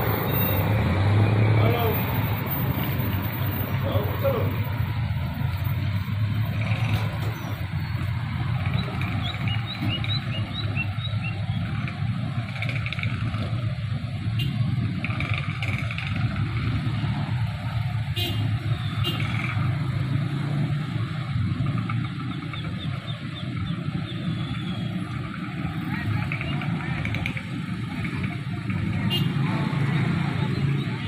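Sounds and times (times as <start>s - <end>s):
low engine rumble with clatter: 0.0s - 31.0s.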